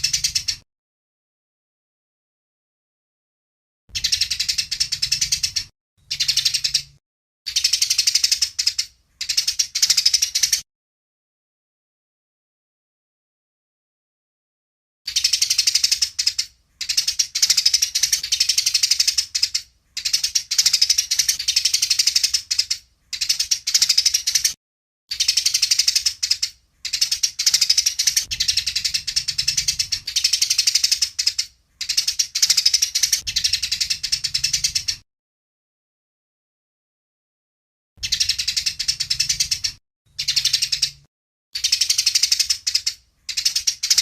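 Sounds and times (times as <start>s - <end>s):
sparrows chattering chirps: 0.0s - 0.6s, 3.9s - 10.6s, 15.1s - 35.0s, 38.0s - 44.0s.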